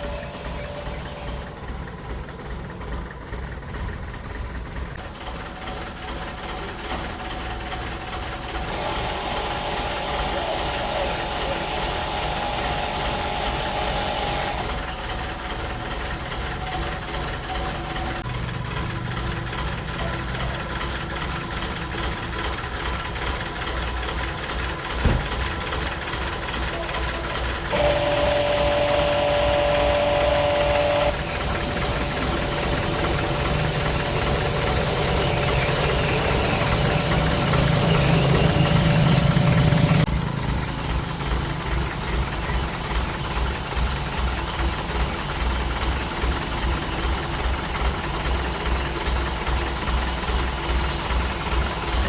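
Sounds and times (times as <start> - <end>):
engine running: 0.0 - 52.0.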